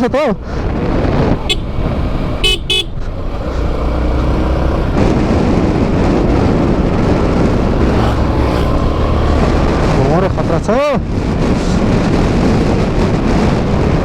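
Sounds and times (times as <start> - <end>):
motorcycle ride noise: 0.0 - 14.0
vehicle horn tooting: 1.5 - 3.0.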